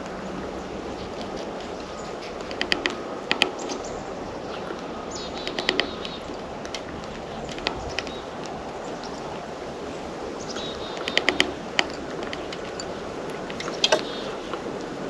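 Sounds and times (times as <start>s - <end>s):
steady outdoor hiss: 0.0s - 15.0s
beaks and feet tapping on feeder: 2.4s - 3.8s, 10.5s - 14.6s.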